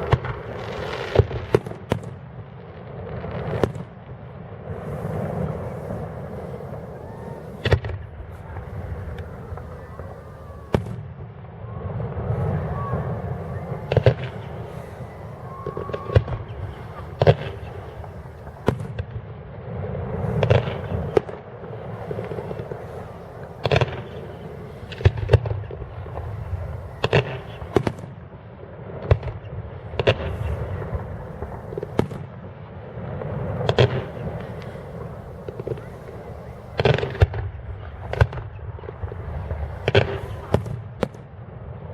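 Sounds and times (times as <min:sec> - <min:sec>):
steady low rumble: 0:04.6 - 0:27.9, 0:33.0 - 0:38.1
firework shells bursting: 0:04.9 - 0:11.0, 0:12.3 - 0:19.0, 0:20.0 - 0:28.1, 0:30.0 - 0:32.2, 0:33.4 - 0:41.2.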